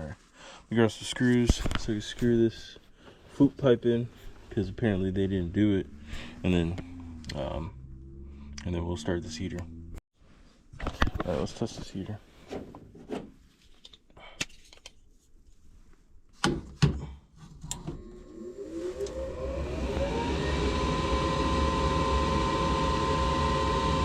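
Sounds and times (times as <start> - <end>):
furnace motor whine and hum: 17.7 - 24.0.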